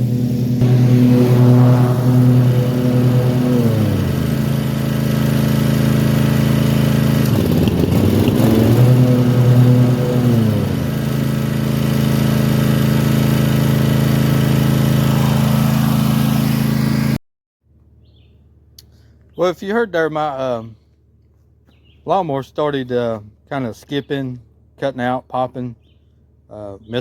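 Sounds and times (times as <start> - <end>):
mower engine misfiring: 0.0 - 17.0.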